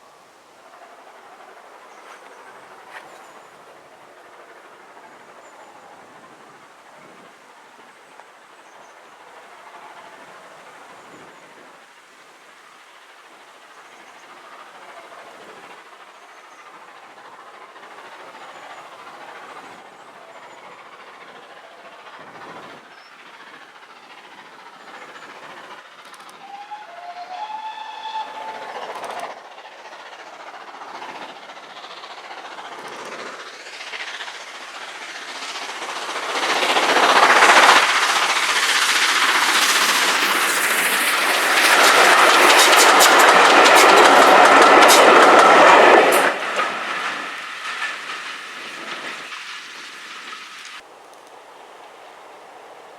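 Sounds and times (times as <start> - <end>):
train passing: 0.0 - 52.9
wheel and rail noise: 0.0 - 52.9
locomotive whistle: 26.2 - 29.4.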